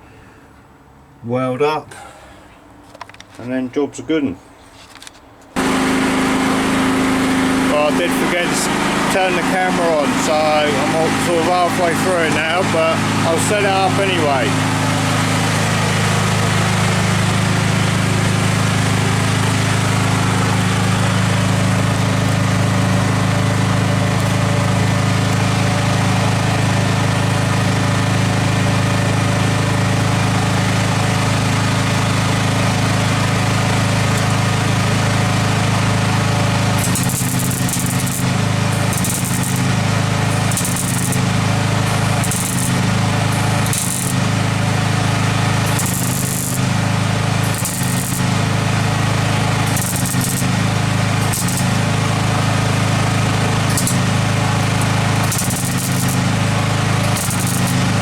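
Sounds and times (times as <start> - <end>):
welding crackle: 5.6 - 29.7, 30.5 - 58.0
low machine hum: 33.3 - 58.0.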